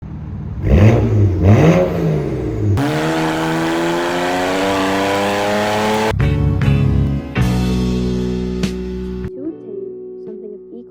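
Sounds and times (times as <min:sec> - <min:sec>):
road noise: 0:00.0 - 0:06.1
car engine revving and accelerating: 0:00.6 - 0:06.1.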